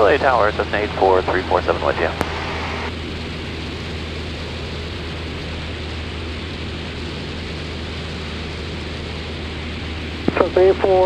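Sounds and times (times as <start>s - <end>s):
propeller plane engine droning: 0.0s - 11.0s.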